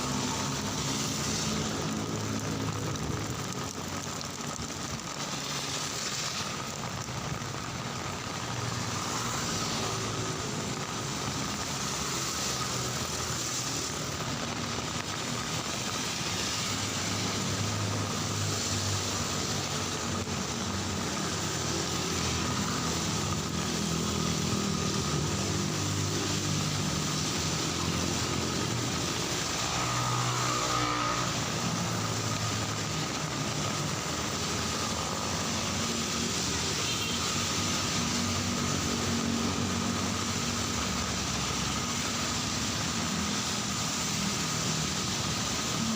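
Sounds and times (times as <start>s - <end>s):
cars and motorcycles on wet street: 0.0s - 45.9s
steady rain: 0.0s - 45.9s.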